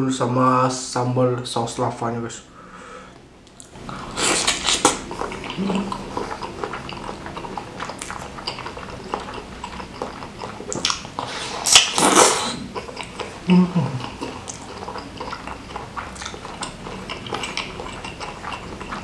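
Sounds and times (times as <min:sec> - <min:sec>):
wet chewing and mouth smacking: 0:03.4 - 0:19.0
wet sucking sound: 0:03.8 - 0:05.9, 0:10.7 - 0:12.7.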